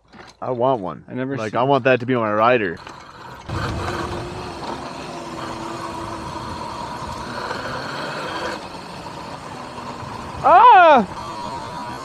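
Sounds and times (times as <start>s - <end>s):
electric motor whine: 2.8s - 12.0s.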